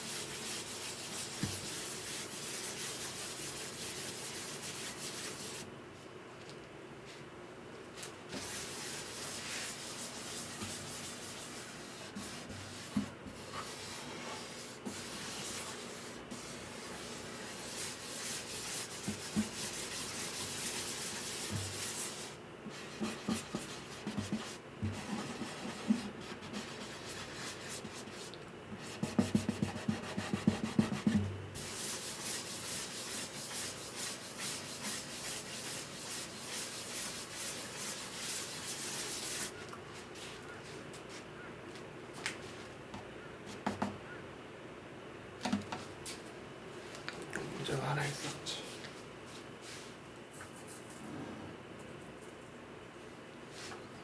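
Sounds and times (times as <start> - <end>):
sandpaper rubbing on wood: 0.0 - 5.6, 8.4 - 12.9, 13.6 - 22.3, 30.1 - 39.5.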